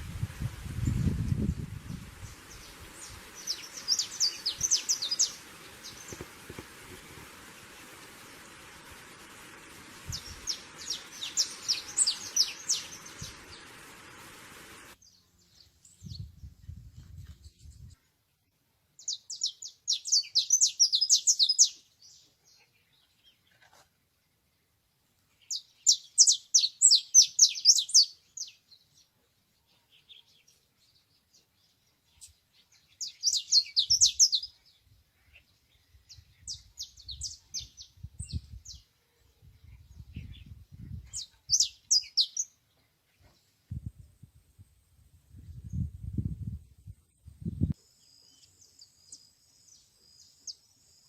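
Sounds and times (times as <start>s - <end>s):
canary singing: 2.5s - 6.4s, 10.0s - 14.2s.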